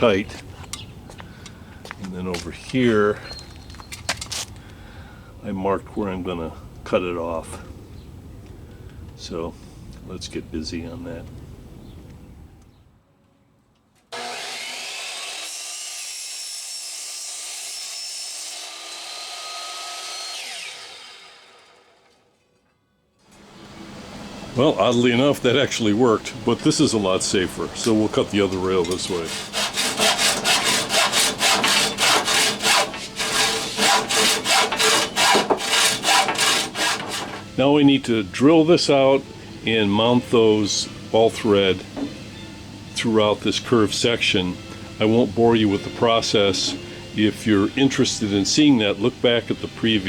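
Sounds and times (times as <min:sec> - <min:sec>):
power saw cutting metal rail: 0:14.1 - 0:22.4, 0:23.3 - 0:37.6, 0:43.5 - 0:50.0.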